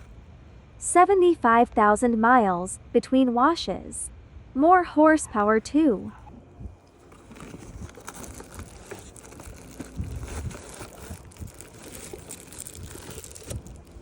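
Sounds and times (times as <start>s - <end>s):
packaging crinkling: 6.9s - 14.0s.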